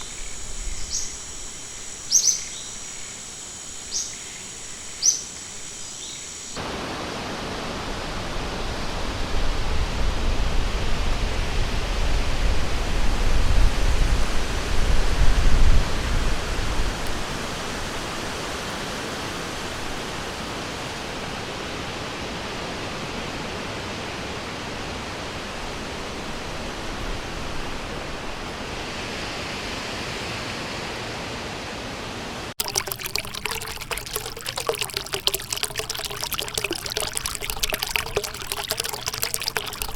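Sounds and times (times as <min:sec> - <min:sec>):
splashing trickling water: 0:32.6 - 0:39.9.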